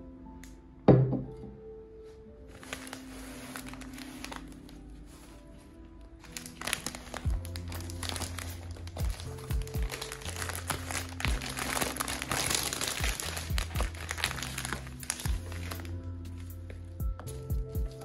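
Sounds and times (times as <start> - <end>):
crinkling rustling handling noise: 2.4 - 18.0
music with bass and beats: 17.0 - 18.0.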